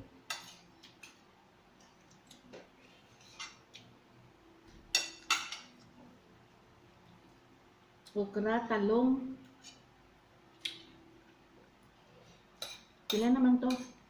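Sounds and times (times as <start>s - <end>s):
utensils clinking against a bowl: 12.6s - 14.0s.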